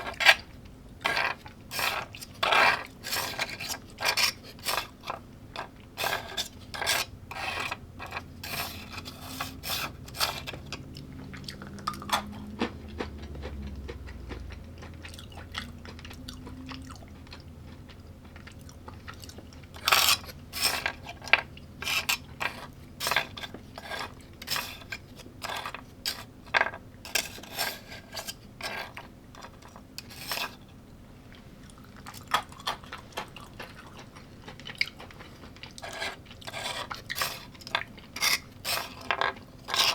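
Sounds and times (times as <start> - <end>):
cutlery scraping a dish: 0.0 - 10.8, 19.8 - 30.6, 35.7 - 39.9
person chewing: 1.2 - 26.2, 31.3 - 39.9.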